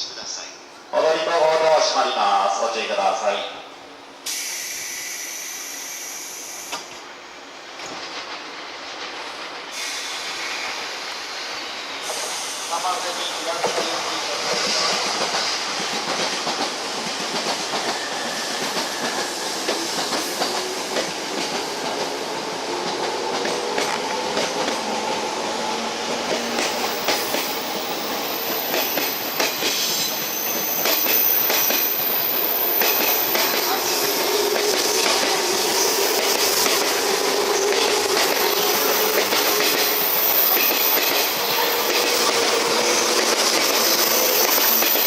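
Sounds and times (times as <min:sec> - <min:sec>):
rail joint clicks: 0:06.0 - 0:07.1, 0:07.8 - 0:10.0, 0:13.5 - 0:25.2, 0:26.1 - 0:45.0
electric train running: 0:12.1 - 0:45.0
high wheel squeal: 0:17.9 - 0:19.5, 0:28.3 - 0:34.3.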